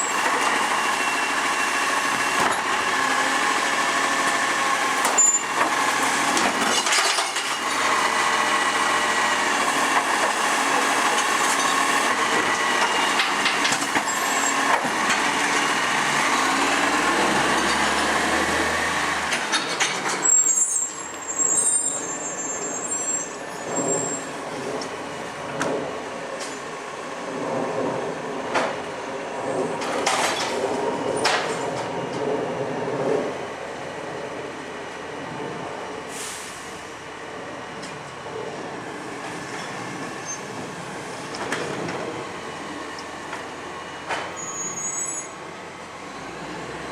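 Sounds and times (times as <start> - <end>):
garbage truck engine running: 0.0 - 22.5
high hiss or squeal: 44.4 - 45.4.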